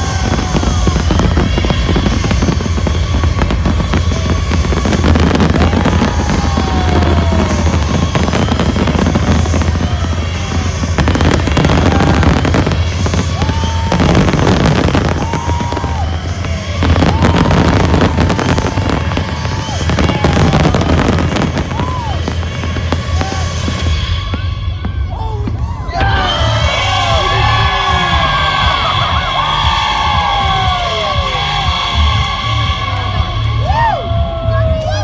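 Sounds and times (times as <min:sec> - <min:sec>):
fireworks bursting: 0:00.0 - 0:35.0
electronic dance music: 0:25.9 - 0:35.0.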